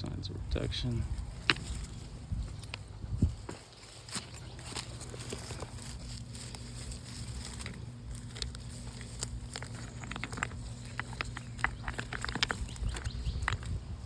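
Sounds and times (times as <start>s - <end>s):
footsteps on gravel and rock: 0.6s - 14.0s.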